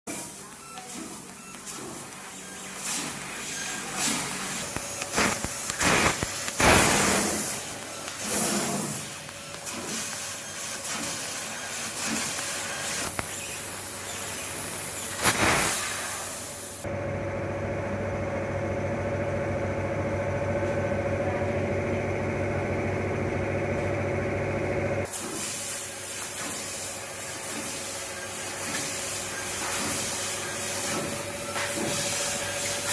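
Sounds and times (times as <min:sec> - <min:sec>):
laser cutter gas jet hissing: 0:00.1 - 0:16.8, 0:25.1 - 0:32.9
machine hum with held tone: 0:16.8 - 0:25.1.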